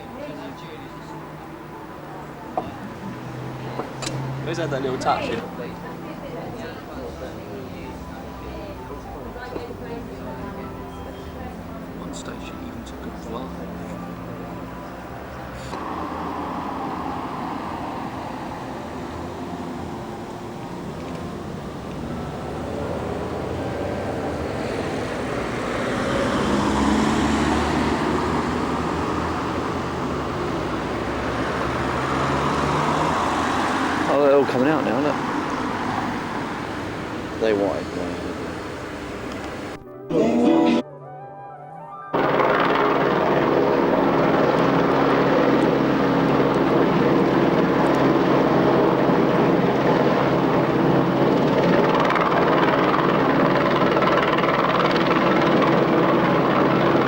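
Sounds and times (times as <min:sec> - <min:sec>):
road noise: 0:00.0 - 0:40.8, 0:42.1 - 0:57.0
vehicle engine hum: 0:00.0 - 0:40.8, 0:42.2 - 0:57.0
helicopter engine and rotor: 0:42.2 - 0:57.0.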